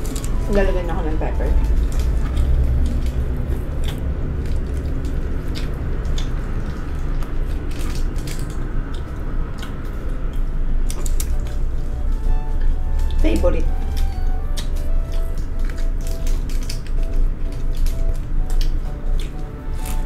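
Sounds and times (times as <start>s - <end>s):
paper sachet crinkling: 0.0s - 8.9s
chewing crispy fried chicken: 0.0s - 20.0s.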